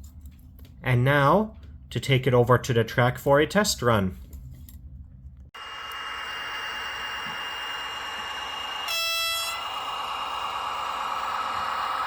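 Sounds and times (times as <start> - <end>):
model train running with whine: 5.6 - 12.0.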